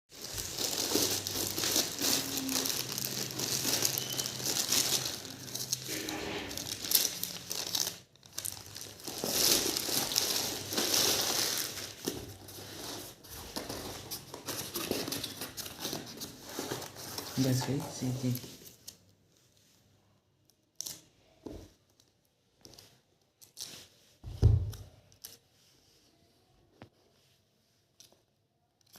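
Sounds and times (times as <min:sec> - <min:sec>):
packaging crinkling and rustling: 0:00.1 - 0:19.1.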